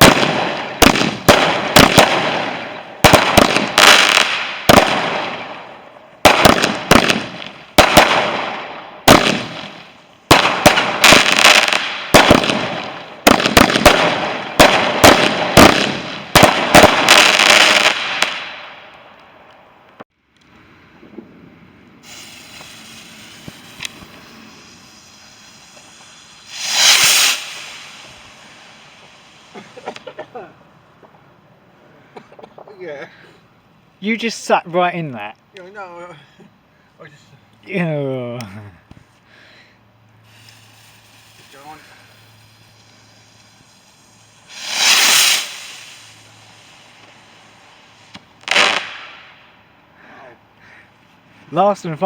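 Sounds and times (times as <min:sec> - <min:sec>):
firework hissing whoosh: 0:00.0 - 0:18.8, 0:21.9 - 0:31.0, 0:39.9 - 0:49.6
firework crack: 0:00.0 - 0:31.8, 0:39.8 - 0:49.9.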